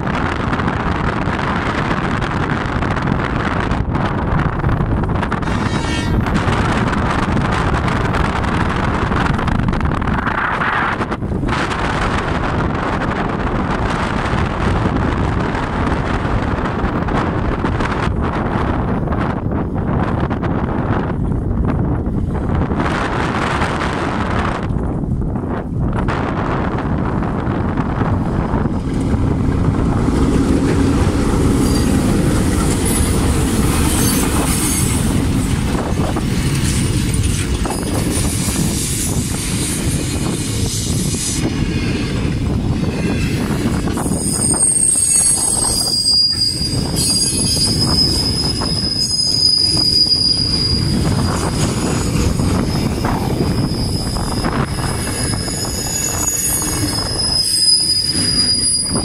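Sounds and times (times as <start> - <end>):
freight train rumbling past: 0.0 - 59.0
train wheels squealing: 31.6 - 35.2, 35.9 - 59.0.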